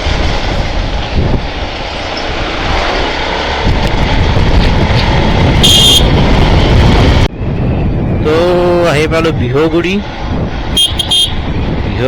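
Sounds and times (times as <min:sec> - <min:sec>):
motorcycle road noise: 0:00.0 - 0:12.0
wind rush: 0:00.0 - 0:12.0
short high horn beep: 0:05.6 - 0:06.1, 0:10.8 - 0:11.4.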